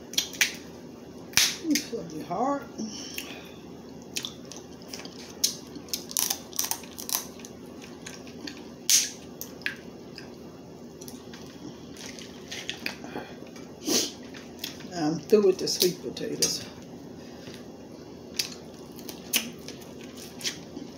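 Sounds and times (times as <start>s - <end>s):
loud snap: 1.4s - 1.6s, 8.9s - 9.2s
crab shell cracking: 4.2s - 7.5s.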